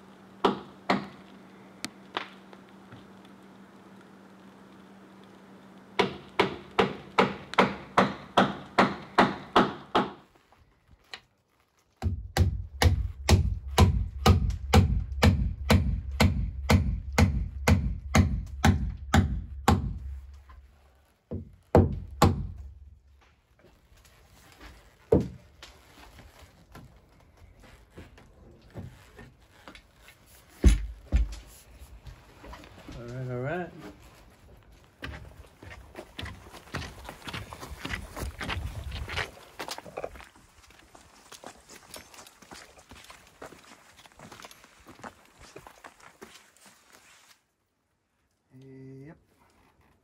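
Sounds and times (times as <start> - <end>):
mallet striking timber: 0.4 - 1.2, 6.0 - 10.2, 12.0 - 20.1, 21.3 - 22.6.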